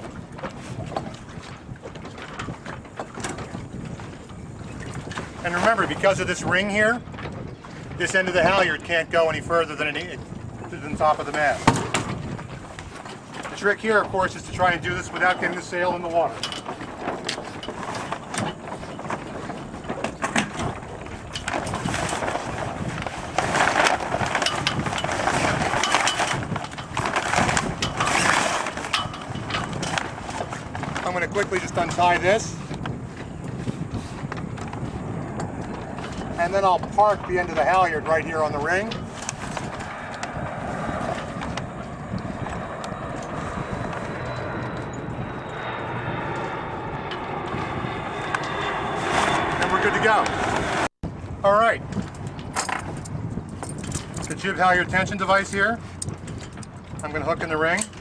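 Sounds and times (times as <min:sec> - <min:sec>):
sailcloth crinkling and rustling: 0:10.7 - 0:35.0
clicks and knocks of rigging: 0:14.9 - 0:37.9, 0:51.9 - 0:58.0
steady rushing background noise: 0:21.6 - 0:52.8.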